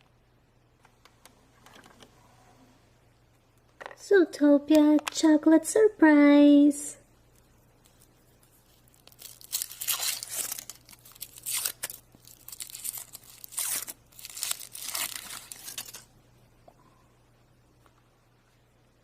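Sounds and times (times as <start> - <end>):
wrapper tearing and crinkling: 8.7 - 16.1.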